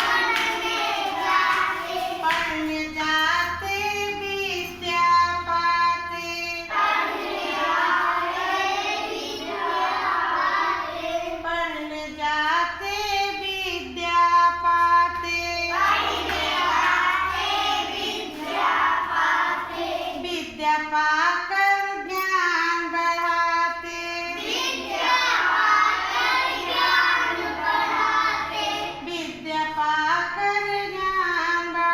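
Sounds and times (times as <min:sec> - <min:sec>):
children singing together: 0:00.0 - 0:12.0, 0:15.5 - 0:20.6, 0:22.0 - 0:31.9.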